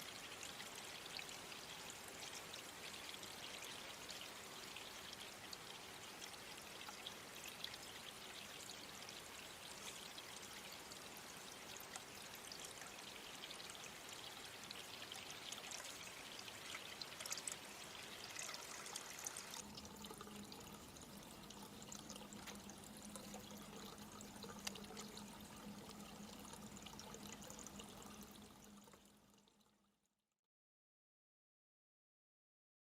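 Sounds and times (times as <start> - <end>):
water pouring and trickling: 0.0 - 30.0
low steady hum: 7.8 - 29.4.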